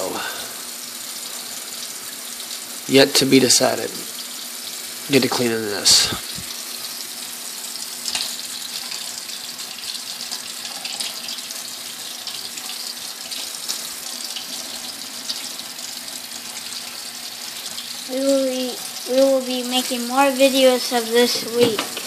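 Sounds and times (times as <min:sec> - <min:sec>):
tap water running into sink: 0:00.0 - 0:22.0.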